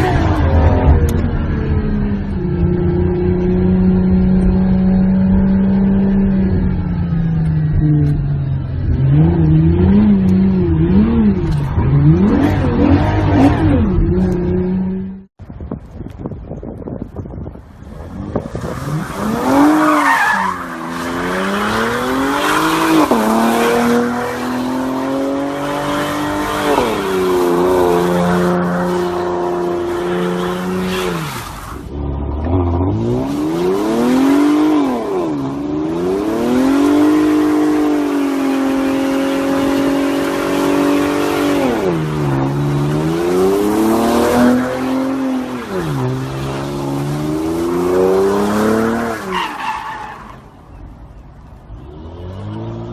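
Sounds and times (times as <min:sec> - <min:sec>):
car engine revving hard: 0:18.2 - 0:31.4, 0:32.4 - 0:49.2.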